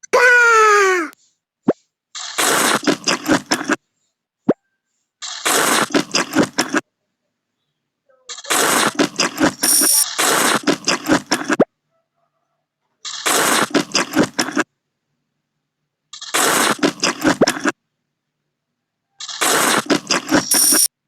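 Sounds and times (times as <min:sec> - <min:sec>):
wet slurping and chewing noodles: 0:02.2 - 0:03.8, 0:05.3 - 0:06.8, 0:08.3 - 0:11.7, 0:13.1 - 0:14.7, 0:16.2 - 0:17.8, 0:19.2 - 0:20.9.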